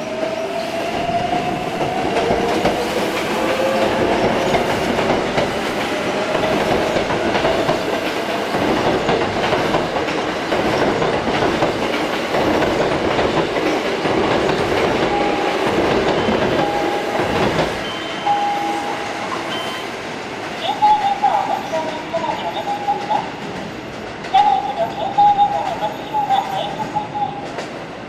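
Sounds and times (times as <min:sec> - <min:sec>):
electric train running: 0:00.1 - 0:19.8
wheels clacking over rail joints: 0:01.3 - 0:17.9
short steady beeps: 0:17.8 - 0:19.9.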